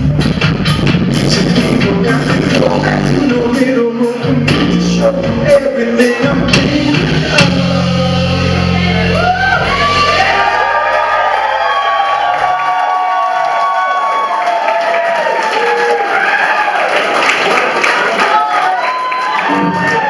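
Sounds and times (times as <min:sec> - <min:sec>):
live band playing: 0:00.0 - 0:10.5
person singing: 0:01.0 - 0:10.5.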